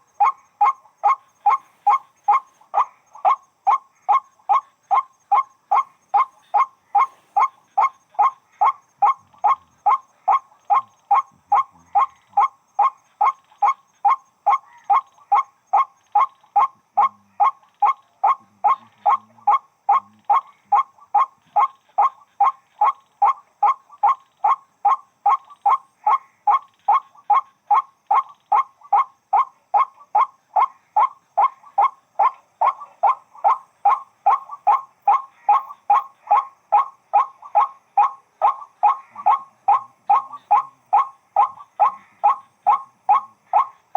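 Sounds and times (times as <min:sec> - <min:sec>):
waterhen calling repeated note: 0:00.0 - 0:43.9.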